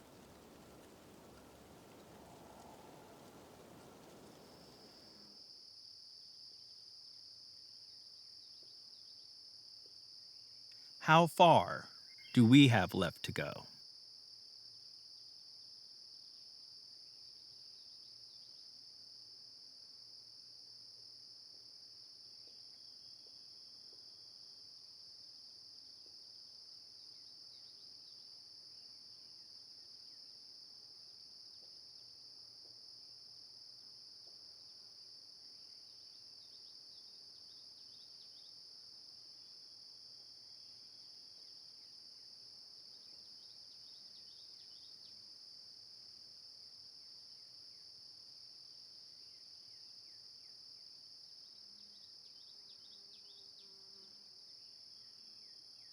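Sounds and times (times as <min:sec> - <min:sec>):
insect chorus drone: 0:00.0 - 0:05.1.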